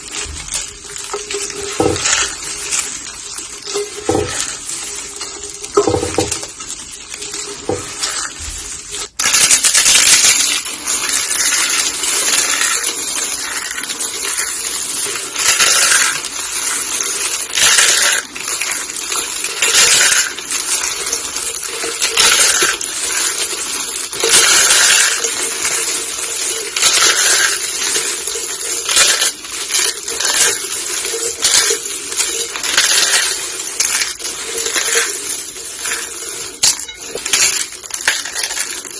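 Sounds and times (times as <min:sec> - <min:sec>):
soap being crushed crunching: 0:00.0 - 0:06.8.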